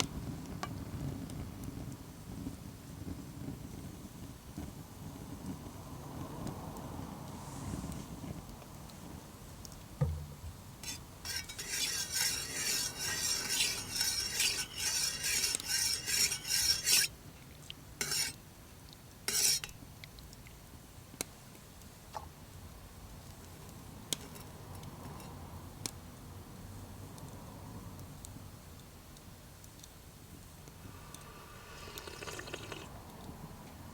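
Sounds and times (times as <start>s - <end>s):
spoon clinking in a mug: 31.8s - 32.9s
spoon tapping mug: 31.8s - 32.9s.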